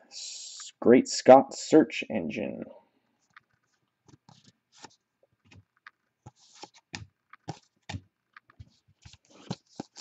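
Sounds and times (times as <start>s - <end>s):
cards clicking and rustling: 3.3s - 10.0s.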